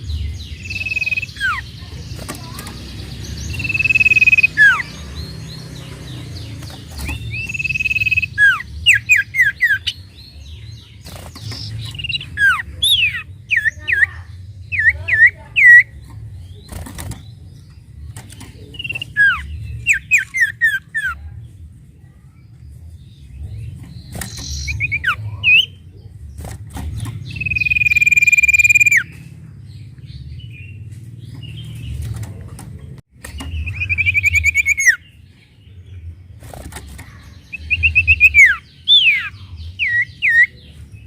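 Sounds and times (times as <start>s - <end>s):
bird whistling: 0.6s - 1.7s, 3.5s - 5.0s, 7.0s - 10.0s, 18.8s - 21.2s, 27.4s - 29.1s, 33.6s - 35.0s.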